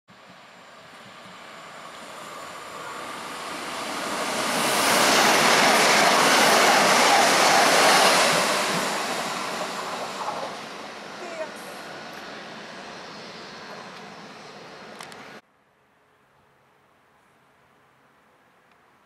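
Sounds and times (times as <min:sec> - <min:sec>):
train passing through station: 0:00.1 - 0:19.0.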